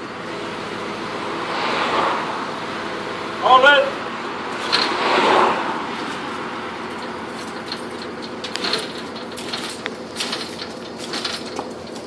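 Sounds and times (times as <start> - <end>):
truck engine idling: 0.0 - 1.4, 2.3 - 12.0
metallic clicks and clanks: 4.6 - 5.0, 6.0 - 12.0.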